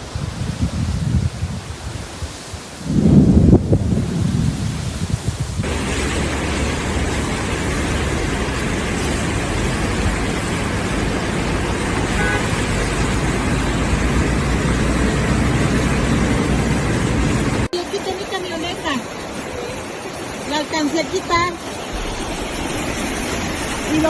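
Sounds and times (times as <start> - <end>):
storm rushing noise: 0.0 - 17.7, 21.7 - 24.0
deep rumble: 2.8 - 12.0, 21.9 - 24.0
horn toot: 12.1 - 12.7.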